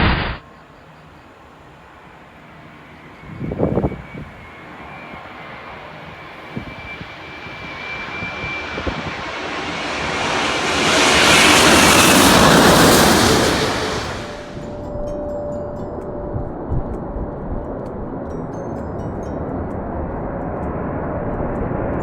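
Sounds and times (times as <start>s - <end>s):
thin high whine: 0.0s - 17.3s
jet airliner passing overhead: 0.0s - 18.5s.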